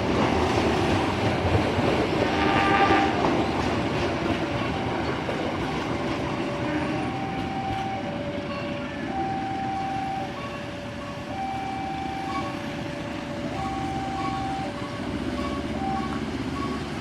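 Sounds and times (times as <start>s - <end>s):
passenger train rumbling: 0.0s - 17.0s
two-tone electronic warning signal: 4.5s - 17.0s.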